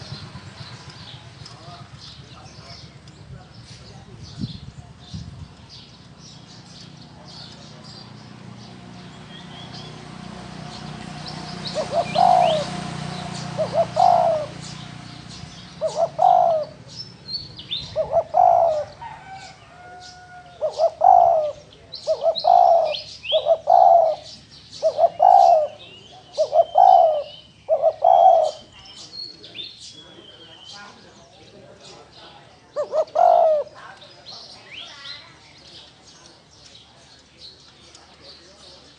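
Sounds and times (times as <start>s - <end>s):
small birds chirping: 0.0s - 38.9s
dove cooing: 10.8s - 29.4s, 32.7s - 34.0s.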